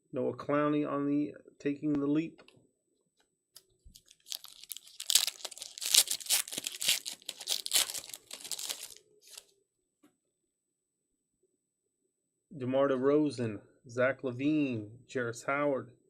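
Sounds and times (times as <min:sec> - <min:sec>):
wrapper crinkling and crackling: 0:03.9 - 0:09.4.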